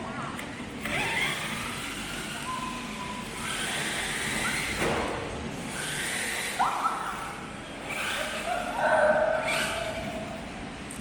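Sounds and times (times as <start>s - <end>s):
rc car electric motor whirring: 0.8s - 5.0s, 5.6s - 8.8s.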